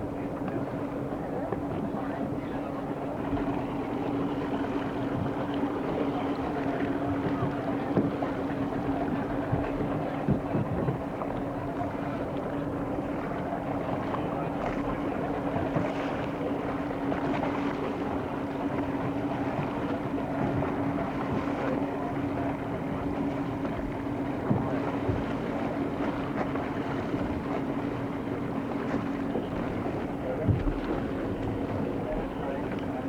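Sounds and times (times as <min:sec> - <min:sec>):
motorboat engine humming: 0:00.0 - 0:33.0.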